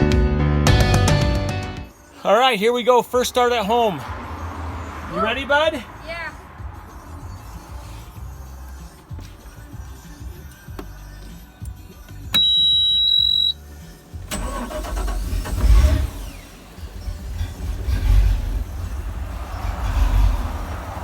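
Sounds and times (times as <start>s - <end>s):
high electronic warning beep: 12.3s - 13.6s
boat engine rumbling: 13.6s - 21.0s.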